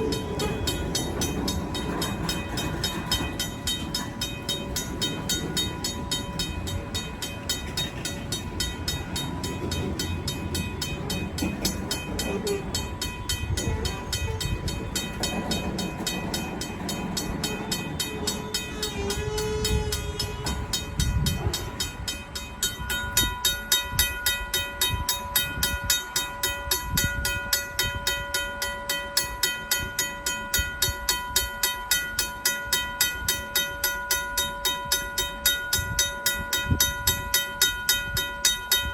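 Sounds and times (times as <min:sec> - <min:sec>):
freight cars rumbling: 0:00.0 - 0:27.5
mechanical crossing bell ringing: 0:00.0 - 0:38.9.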